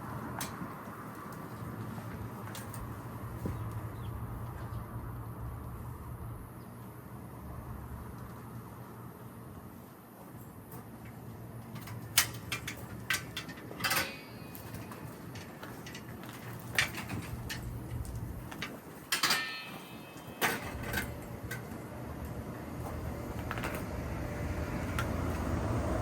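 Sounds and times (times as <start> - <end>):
objects knocking and clinking: 18.5 - 21.7.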